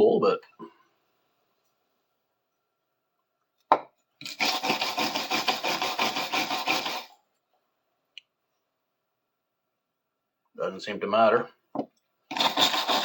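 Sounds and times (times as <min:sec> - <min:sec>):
sandpaper scrubbing metal: 0:04.3 - 0:07.1, 0:12.3 - 0:13.0.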